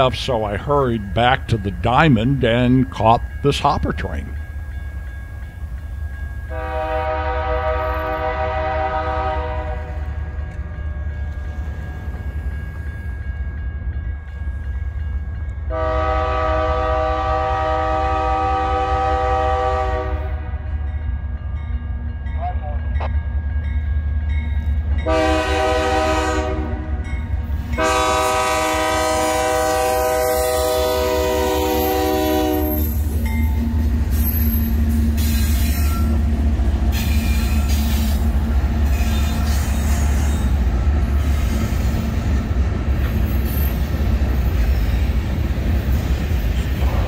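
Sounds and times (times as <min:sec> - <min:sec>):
train rumbling past on rails: 0:00.0 - 0:47.0
locomotive air horn blasts: 0:06.5 - 0:10.1, 0:15.7 - 0:20.5, 0:25.0 - 0:27.0, 0:27.8 - 0:33.0.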